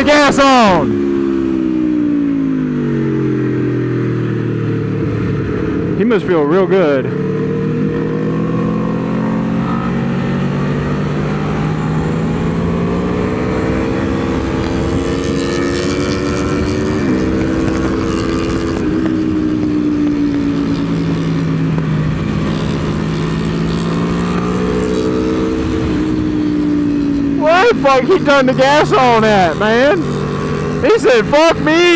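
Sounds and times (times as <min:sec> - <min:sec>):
motorcycle engine revving: 0:00.0 - 0:31.9
wind noise: 0:09.6 - 0:27.3.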